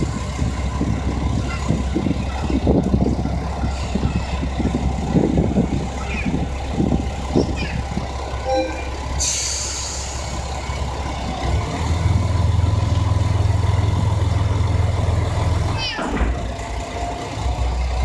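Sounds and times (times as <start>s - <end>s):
diesel engine drone: 0.0s - 18.0s
air brake hiss: 9.2s - 10.4s.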